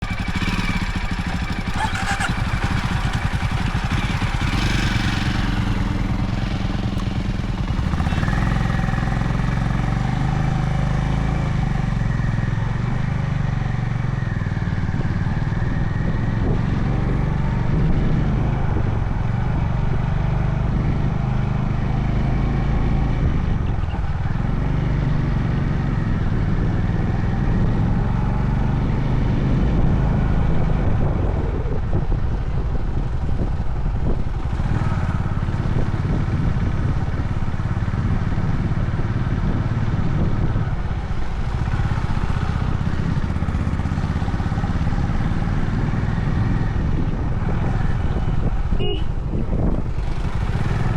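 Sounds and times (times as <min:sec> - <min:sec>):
motorcycle engine running: 0:00.0 - 0:50.9
road noise: 0:00.0 - 0:50.9
wind noise: 0:00.0 - 0:50.9.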